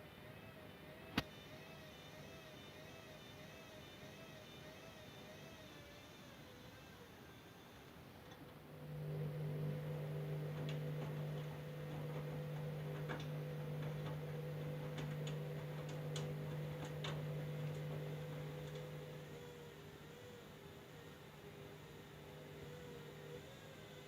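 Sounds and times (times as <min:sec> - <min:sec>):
washing machine motor humming: 0:08.4 - 0:24.0.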